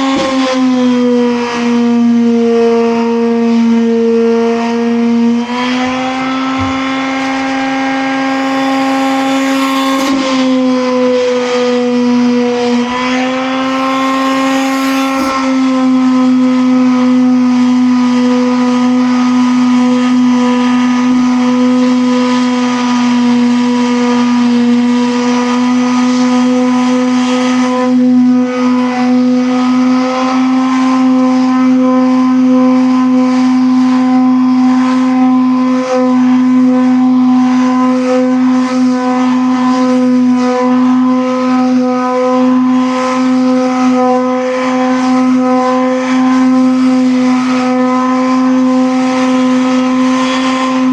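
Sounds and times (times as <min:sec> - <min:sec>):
machine motor humming: 0:02.0 - 0:17.3.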